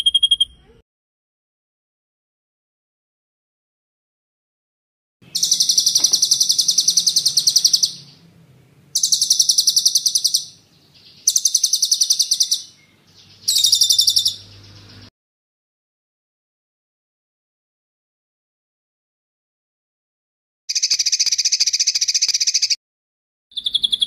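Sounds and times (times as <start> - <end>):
songbird rolling trills: 5.3 - 15.1.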